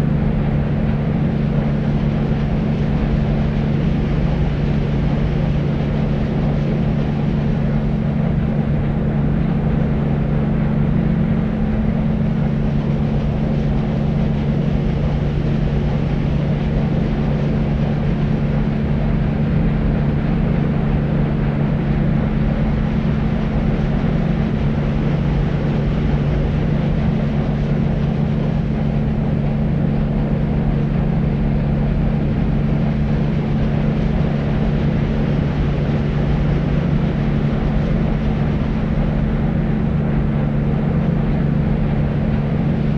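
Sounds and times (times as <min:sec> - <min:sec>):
low hum: 0:00.0 - 0:42.9.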